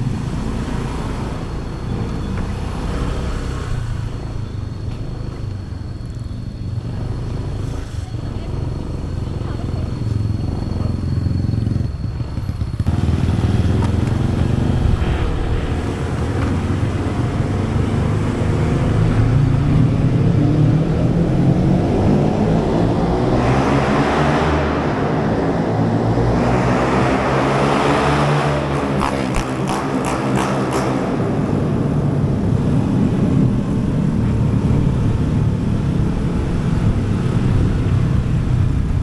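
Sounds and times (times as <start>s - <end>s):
motorcycle engine running: 0.0s - 23.8s
wind and tyre noise: 0.0s - 39.0s.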